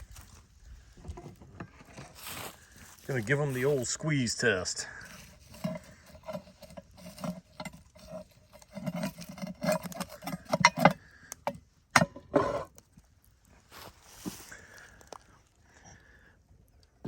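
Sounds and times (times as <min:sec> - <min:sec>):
cooking gear clicks and scrapes: 0:01.0 - 0:13.0.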